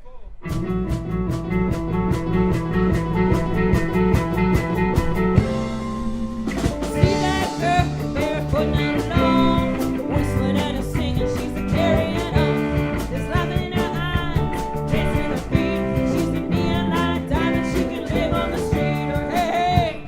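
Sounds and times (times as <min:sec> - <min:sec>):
live rock band playing: 0:00.5 - 0:20.0
woman singing lead: 0:06.5 - 0:20.0.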